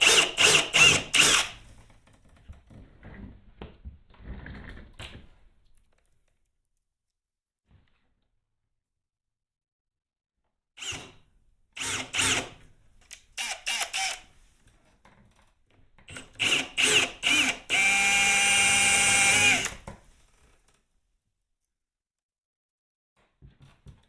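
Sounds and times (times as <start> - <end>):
electric drill whining: 0.0 - 1.6, 10.8 - 11.1, 11.8 - 12.6, 13.4 - 14.3, 16.1 - 19.9.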